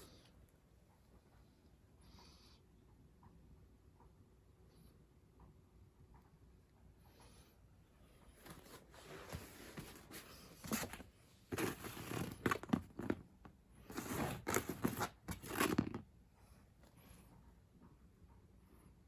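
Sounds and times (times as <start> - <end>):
rustling tearing handling noise: 10.0 - 13.2, 13.9 - 16.0.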